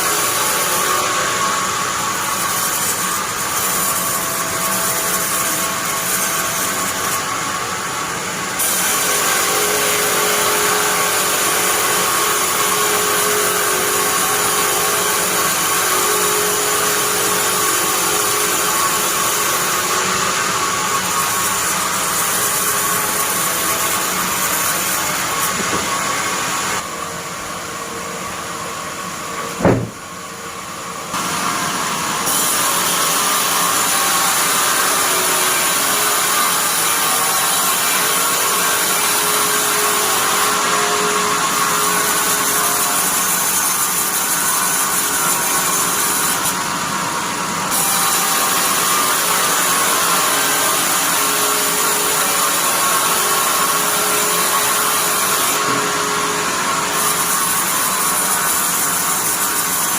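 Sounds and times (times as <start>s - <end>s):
bandsaw sawing wood: 0.0s - 26.9s, 31.1s - 59.9s
sharp knock: 29.6s - 30.0s.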